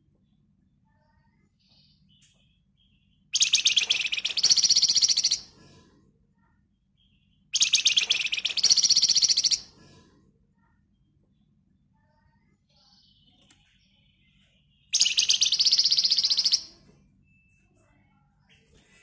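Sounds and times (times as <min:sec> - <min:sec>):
bird rattling trills: 0:03.4 - 0:05.4, 0:07.6 - 0:09.6.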